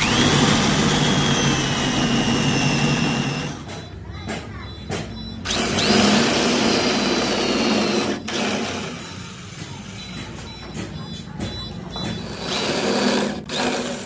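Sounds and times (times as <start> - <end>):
power tool motor whining: 0.0 - 3.6, 5.4 - 10.0, 12.2 - 14.0.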